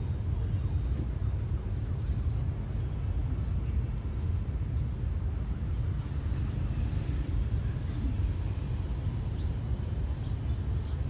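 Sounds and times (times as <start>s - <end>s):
train coaches rumbling on track: 2.6s - 11.0s.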